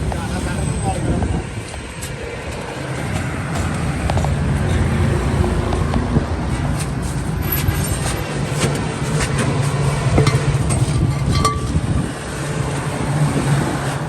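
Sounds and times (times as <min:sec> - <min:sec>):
motor vehicle rumble: 0:00.0 - 0:14.0.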